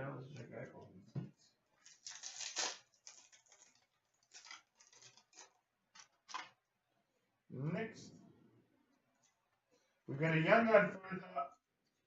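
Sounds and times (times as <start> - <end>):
cards rustling and sliding: 1.8 - 6.6.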